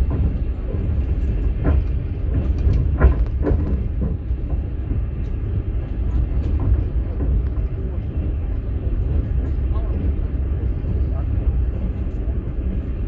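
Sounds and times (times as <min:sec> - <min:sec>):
train car rumble: 0:00.0 - 0:13.0.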